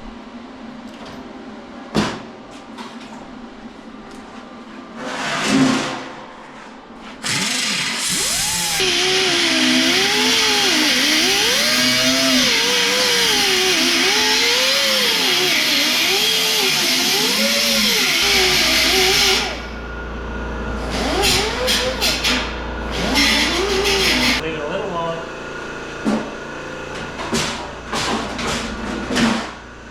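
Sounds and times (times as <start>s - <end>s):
power tool cutting sheet metal: 7.2s - 19.8s, 20.8s - 24.4s.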